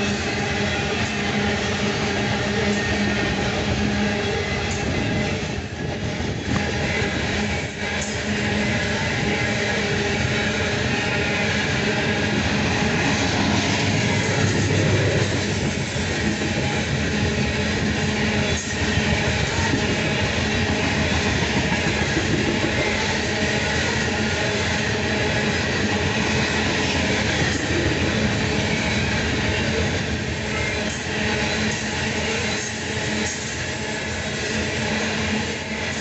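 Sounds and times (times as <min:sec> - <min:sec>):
freight train rumbling past: 0:00.0 - 0:36.0
steel wheels clattering on rails: 0:12.6 - 0:36.0.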